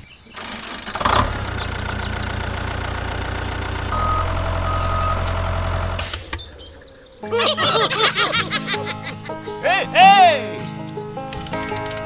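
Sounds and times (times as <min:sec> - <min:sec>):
tractor engine running: 0:00.4 - 0:06.6.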